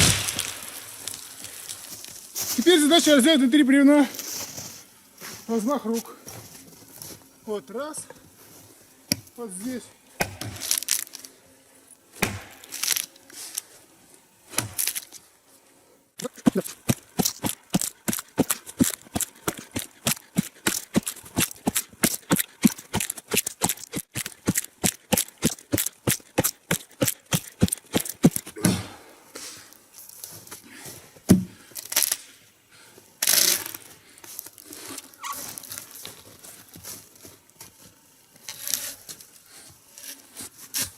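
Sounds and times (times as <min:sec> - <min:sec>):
hand saw cutting log: 0:16.2 - 0:28.7.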